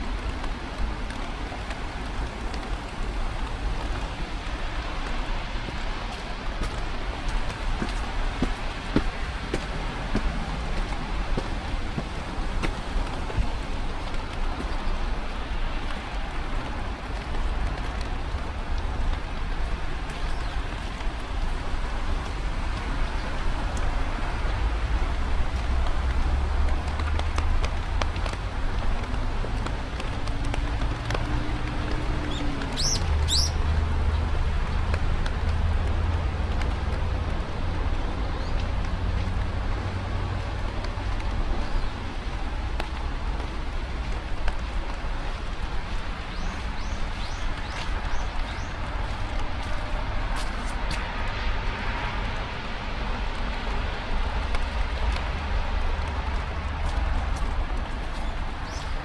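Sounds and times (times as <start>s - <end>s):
low traffic rumble: 0.0s - 59.0s
bird calling: 32.3s - 33.6s.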